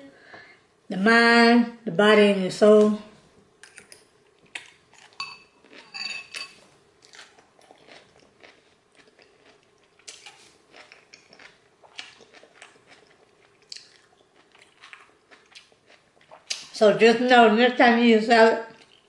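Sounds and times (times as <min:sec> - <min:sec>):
person chewing salad: 0:03.6 - 0:16.7, 0:18.8 - 0:19.0.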